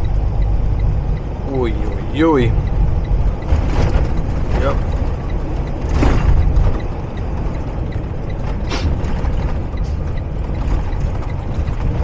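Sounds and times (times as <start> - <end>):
road noise: 0.0 - 12.0
truck engine rumble: 0.0 - 12.0
sharp click: 8.7 - 9.1.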